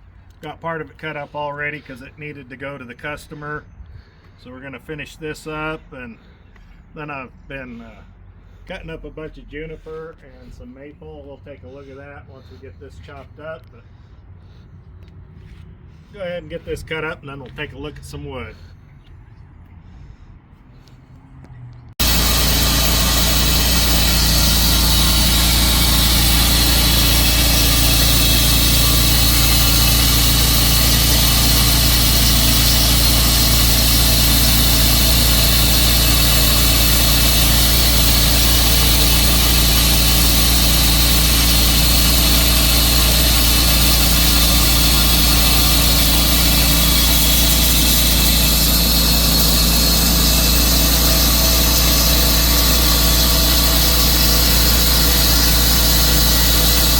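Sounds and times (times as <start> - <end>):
saw blade hissing in wood: 22.0 - 56.9
sawmill engine hum: 22.0 - 56.9.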